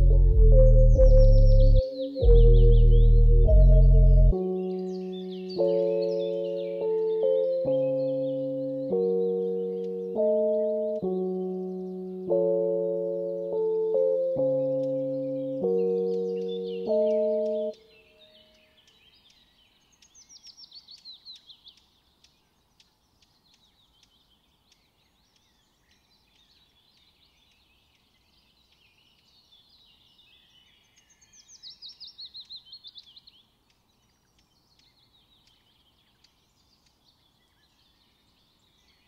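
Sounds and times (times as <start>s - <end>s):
songbird singing falling notes: 0.0s - 27.7s
faint bird chirps: 0.0s - 28.3s.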